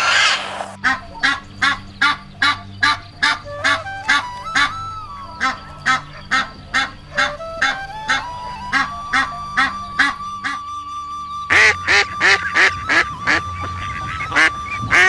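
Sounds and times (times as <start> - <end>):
honking bird calls: 0.8 - 10.6
faint sustained tune: 0.8 - 11.5.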